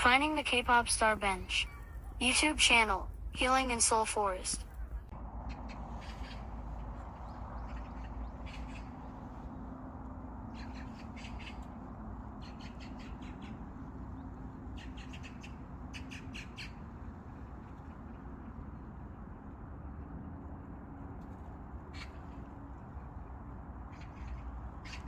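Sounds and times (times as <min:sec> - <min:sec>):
low background hum: 0:00.0 - 0:25.0
birds calling: 0:04.7 - 0:09.8, 0:10.4 - 0:17.7.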